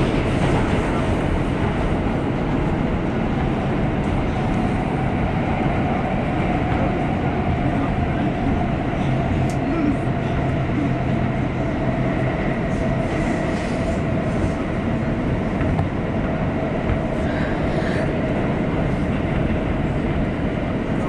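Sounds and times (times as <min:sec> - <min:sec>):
subway train wheels rumbling: 0:00.0 - 0:21.0.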